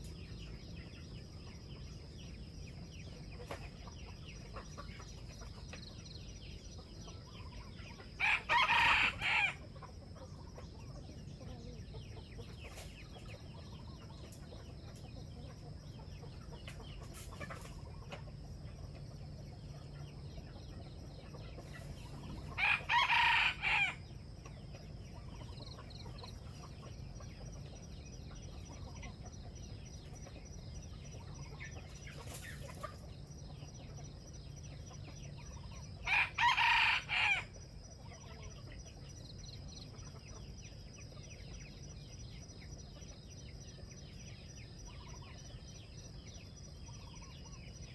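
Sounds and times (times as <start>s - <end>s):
faint bird chirps: 0.0s - 47.9s
rooster crowing: 8.2s - 9.6s, 22.6s - 24.0s, 36.0s - 37.5s.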